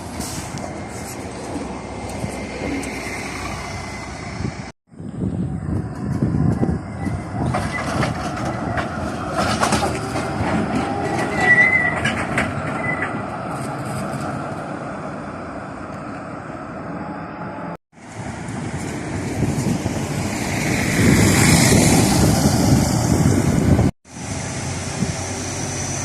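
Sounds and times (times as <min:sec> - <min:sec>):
high wheel squeal: 0:05.5 - 0:14.3, 0:22.5 - 0:26.0
wheels clicking over rails: 0:05.6 - 0:15.1.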